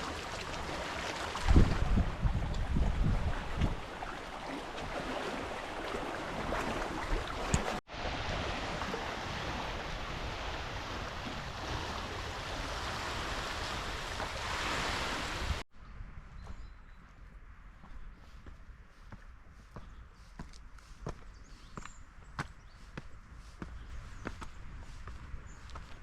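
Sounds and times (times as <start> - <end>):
lake water washing: 0.0 - 15.6.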